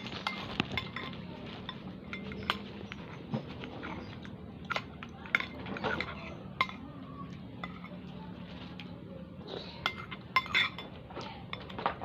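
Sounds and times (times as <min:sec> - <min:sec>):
cutlery clinking against bowl: 0:00.0 - 0:08.1, 0:09.8 - 0:12.0.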